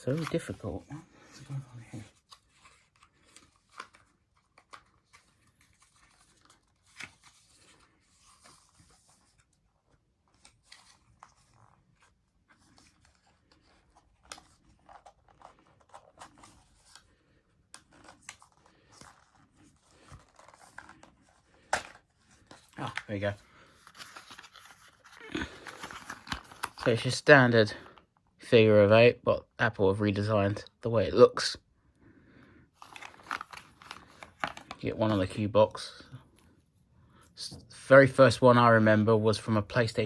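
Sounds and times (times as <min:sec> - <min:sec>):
cardboard and paper rustling: 0:00.0 - 0:28.1, 0:32.7 - 0:36.0.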